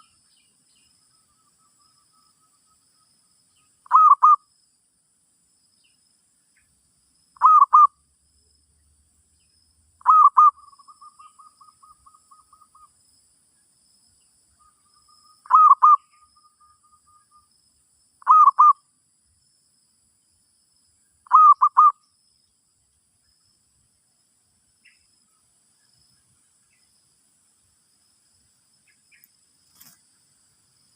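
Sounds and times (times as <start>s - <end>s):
dove cooing: 3.8s - 4.4s, 7.4s - 7.9s, 10.0s - 12.8s, 15.5s - 16.0s, 18.2s - 18.8s, 21.3s - 21.9s.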